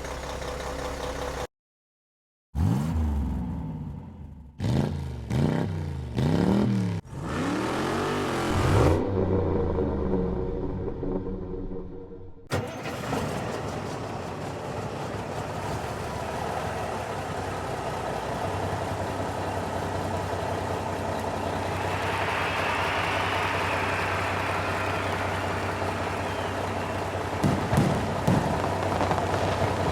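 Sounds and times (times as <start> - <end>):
car engine running: 13.6 - 29.9.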